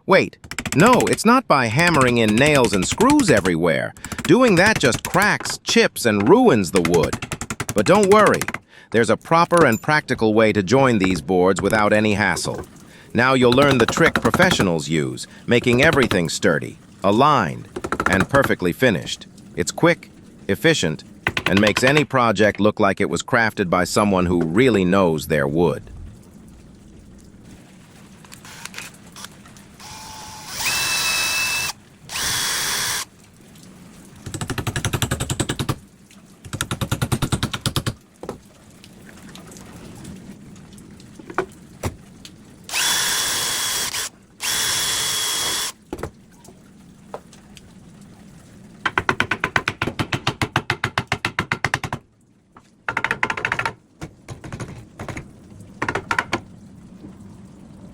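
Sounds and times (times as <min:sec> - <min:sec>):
power drill running: 0:29.8 - 0:33.1, 0:42.7 - 0:45.8.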